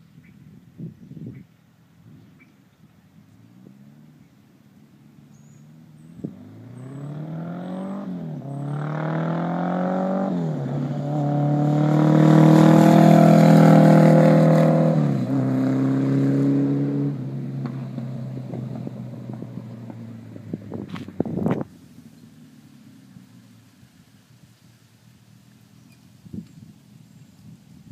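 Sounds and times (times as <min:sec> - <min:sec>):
motorcycle engine accelerating: 0:05.3 - 0:23.9
exhaust crackle: 0:17.1 - 0:27.9.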